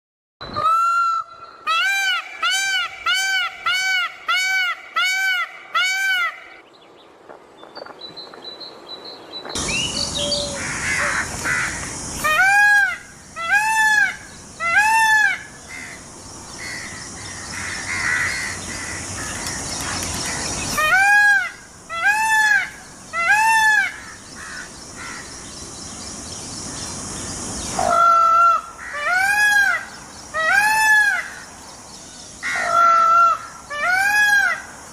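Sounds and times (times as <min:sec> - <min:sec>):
peacock calling: 0:00.4 - 0:06.6, 0:09.6 - 0:25.6, 0:26.6 - 0:34.8
steady hiss: 0:08.4 - 0:34.9.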